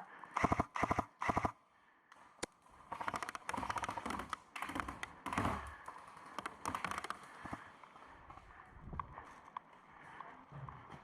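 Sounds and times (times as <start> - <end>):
airsoft gun firing: 0.4 - 1.5.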